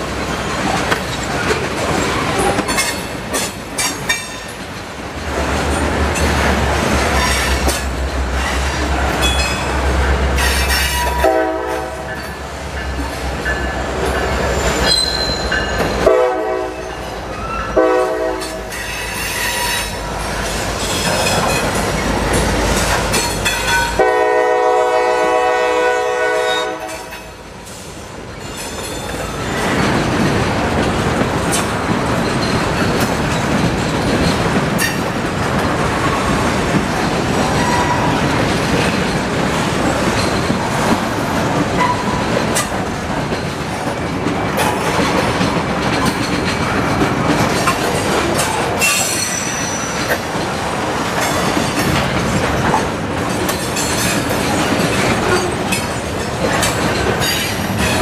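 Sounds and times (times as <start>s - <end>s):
freight train rumbling past: 0.0s - 58.0s
locomotive horn blasts: 10.8s - 12.2s, 16.0s - 17.0s, 17.8s - 18.8s, 23.8s - 27.2s.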